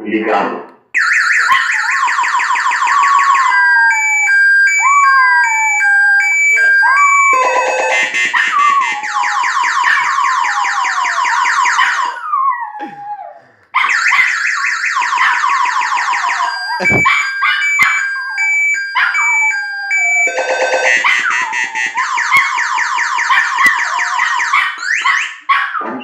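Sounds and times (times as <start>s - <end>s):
motorcycle alarm beeping and warbling: 1.0s - 12.4s, 13.9s - 25.4s
dog howling: 5.0s - 14.2s, 15.2s - 21.3s
sharp thump: 16.8s - 17.1s.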